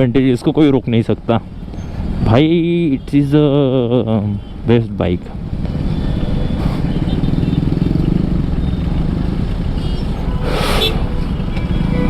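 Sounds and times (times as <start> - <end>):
motorcycle engine running: 5.2 - 12.0.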